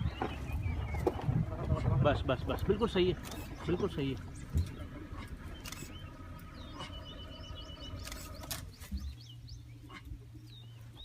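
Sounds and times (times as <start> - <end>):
low engine hum: 0.0 - 11.0
small birds chirping: 0.0 - 11.0
sharp clicks: 5.5 - 6.0, 8.0 - 8.8.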